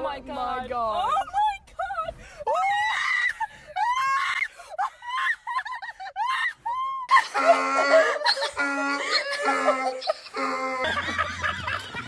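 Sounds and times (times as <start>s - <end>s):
person screaming: 7.1s - 11.3s.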